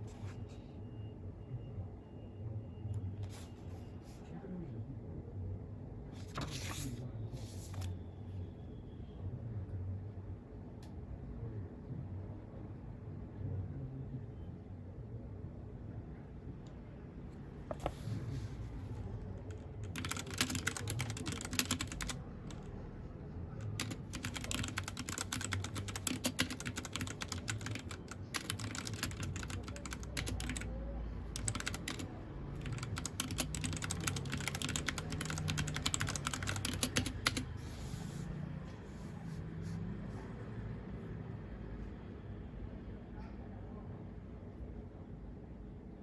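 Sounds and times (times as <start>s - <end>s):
mechanical keyboard key clicks: 23.8s - 30.6s, 31.4s - 32.0s, 32.6s - 37.4s.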